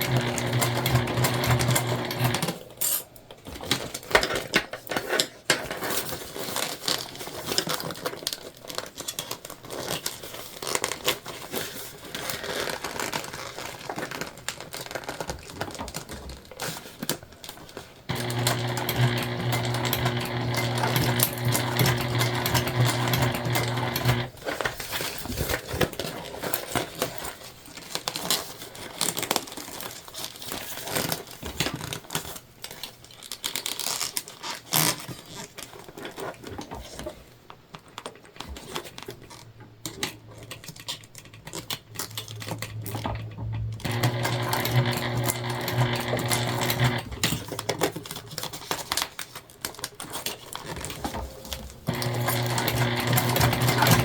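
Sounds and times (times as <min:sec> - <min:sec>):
sewing machine stitching: 0:00.0 - 0:02.6, 0:18.1 - 0:24.7, 0:43.8 - 0:47.6, 0:51.2 - 0:54.0
clicks and rustling of vinyl: 0:03.3 - 0:18.7, 0:19.4 - 0:54.0.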